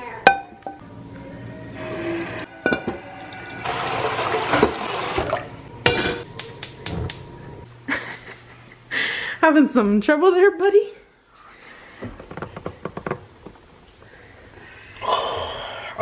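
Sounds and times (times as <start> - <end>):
pots and dishes clinking: 2.2 - 4.8, 5.8 - 6.3
kitchen tap running: 2.2 - 5.6.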